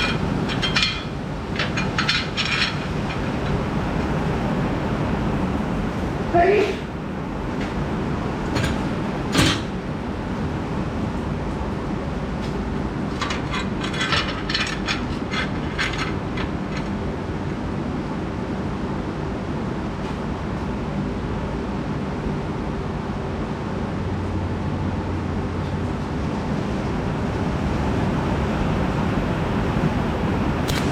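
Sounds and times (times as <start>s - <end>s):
mechanical rumbling: 0.0s - 6.0s, 12.4s - 18.2s.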